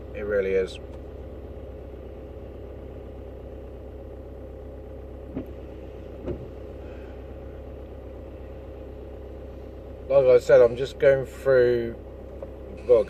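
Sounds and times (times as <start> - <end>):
car engine running at low revs: 0.0 - 13.0
short knocks: 6.2 - 6.6.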